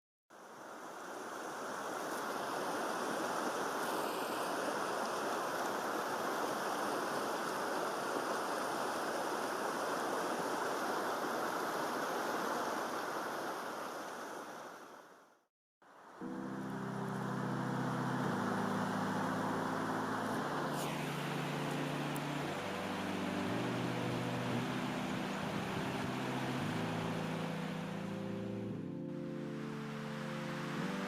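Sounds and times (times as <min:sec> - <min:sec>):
rushing water: 0:00.3 - 0:31.0.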